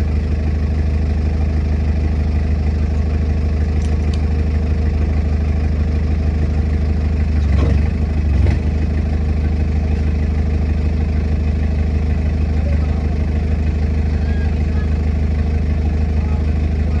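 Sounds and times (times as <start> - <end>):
large engine idling: 0.0 - 17.0
engine power bursts: 7.3 - 8.8.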